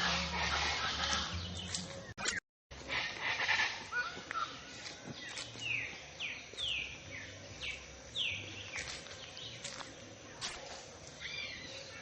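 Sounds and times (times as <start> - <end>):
bird chirping: 0.0 - 2.4, 3.4 - 12.0
outdoor background hiss: 2.7 - 12.0.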